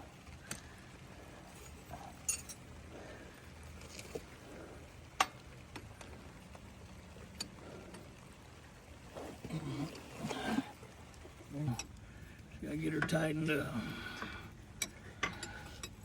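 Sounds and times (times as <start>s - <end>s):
metal tools clinking: 2.0s - 2.6s.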